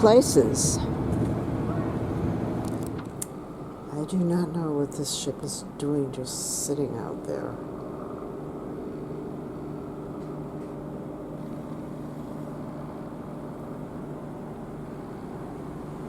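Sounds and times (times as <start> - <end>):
low machinery hum: 0.0 - 16.0.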